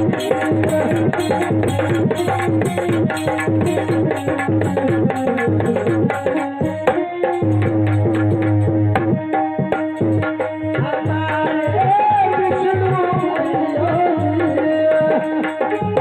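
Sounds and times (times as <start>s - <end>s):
wavering melody: 0.0s - 11.8s
tabla playing steady rhythm: 0.0s - 16.0s.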